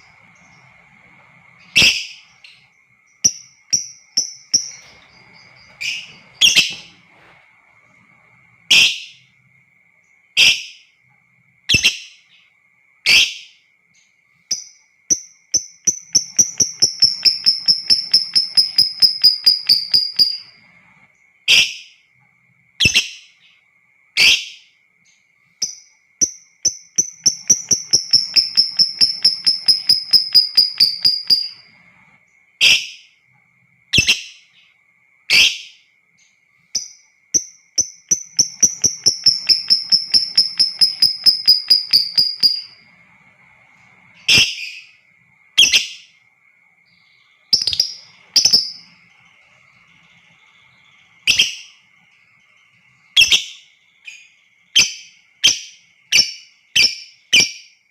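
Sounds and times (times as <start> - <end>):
faint steady high tone: 0.0 - 57.9
bird rapid chattering trill: 15.9 - 20.5, 26.6 - 31.6, 37.4 - 42.8, 47.5 - 48.9.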